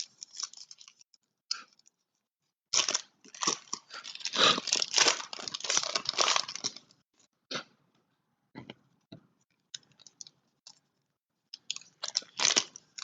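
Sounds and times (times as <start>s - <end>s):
card pack wrappers tearing and crinkling: 0.0s - 1.0s, 2.7s - 7.0s, 11.7s - 13.0s.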